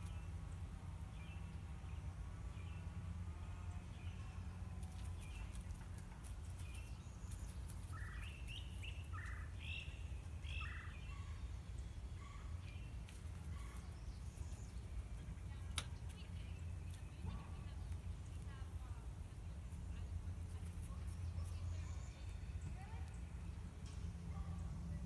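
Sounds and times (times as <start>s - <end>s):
bird calling: 7.8s - 11.4s.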